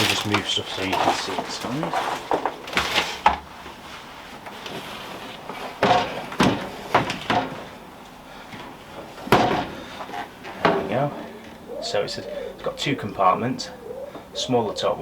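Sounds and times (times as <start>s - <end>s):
plastic knocks and clatter: 4.4s - 7.8s, 8.5s - 11.6s.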